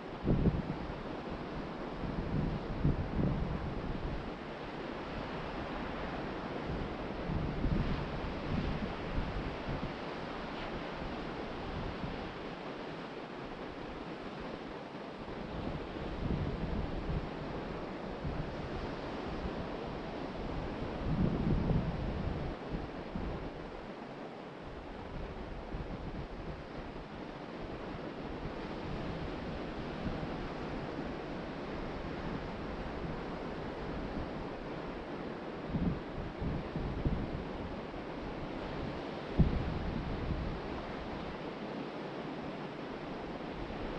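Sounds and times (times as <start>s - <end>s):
wind rumbling on microphone: 0.0s - 43.9s
ocean surf washing onto beach: 0.1s - 43.9s
wind buffeting microphone: 0.2s - 4.4s, 15.5s - 23.8s, 35.6s - 41.4s.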